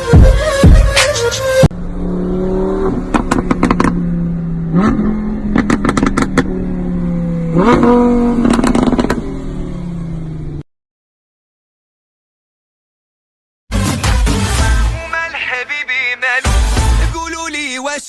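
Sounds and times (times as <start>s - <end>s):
car engine revving: 1.1s - 10.6s
exhaust cracks: 2.8s - 6.7s, 7.4s - 9.3s.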